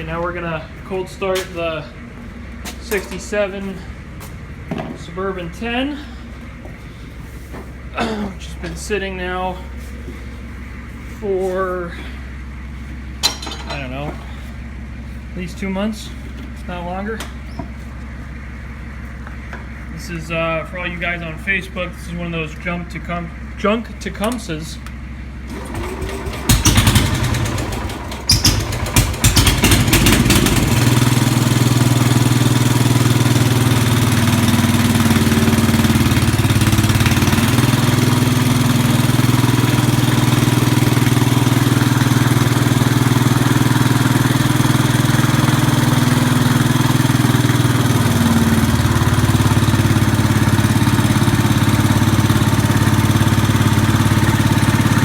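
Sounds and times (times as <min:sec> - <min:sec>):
small engine cranking and starting: 0:25.5 - 0:55.0.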